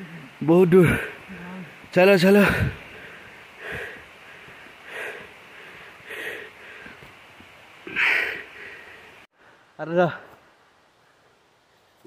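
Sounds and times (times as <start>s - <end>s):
person breathing hard: 2.4s - 7.0s, 7.9s - 9.7s.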